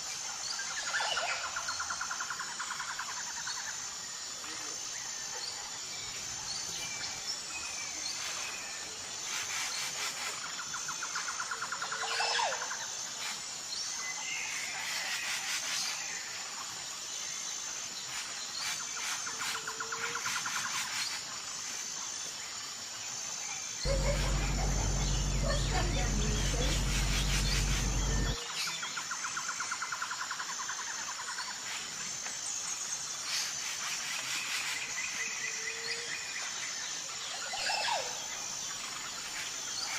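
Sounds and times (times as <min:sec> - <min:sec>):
loud low hum: 0:23.9 - 0:28.4.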